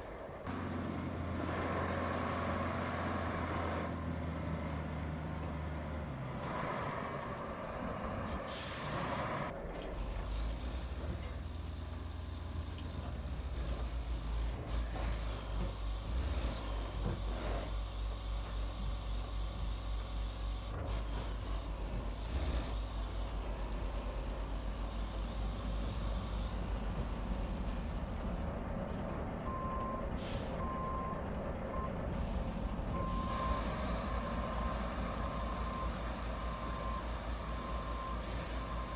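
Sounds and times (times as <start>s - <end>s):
truck diesel engine rumbling: 0.0s - 38.9s
reversing beeper: 33.0s - 38.9s.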